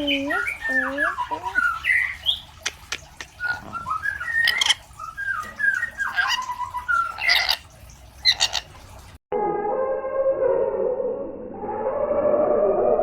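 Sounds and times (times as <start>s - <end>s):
parrot harsh screeches: 7.1s - 7.6s, 8.2s - 8.7s.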